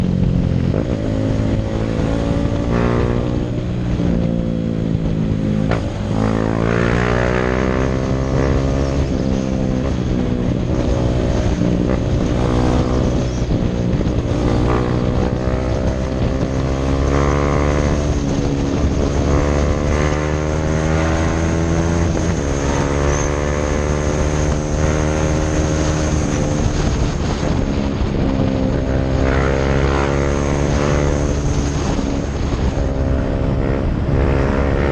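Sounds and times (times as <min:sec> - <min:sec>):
motorcycle engine shifting gears: 0:00.0 - 0:34.9.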